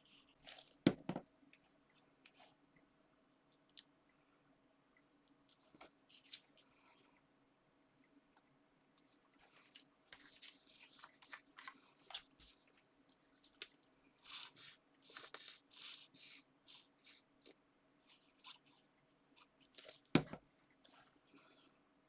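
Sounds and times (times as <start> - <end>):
paper rustling and crinkling: 9.4 - 17.2.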